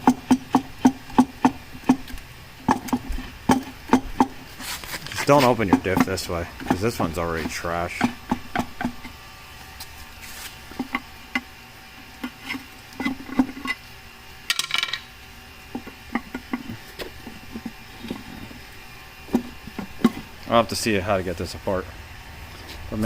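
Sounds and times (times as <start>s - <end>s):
metal scraping rasp: 0.0s - 9.2s, 10.2s - 13.8s, 15.8s - 20.3s.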